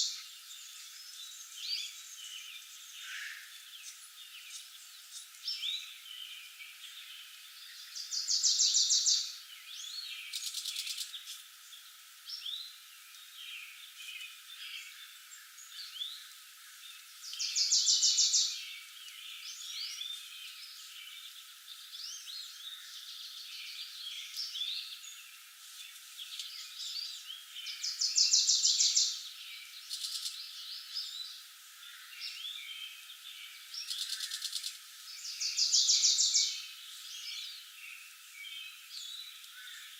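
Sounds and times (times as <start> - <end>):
bird chorus chirps: 0.0 - 39.9
loud rapid bird trill: 31.9 - 37.6.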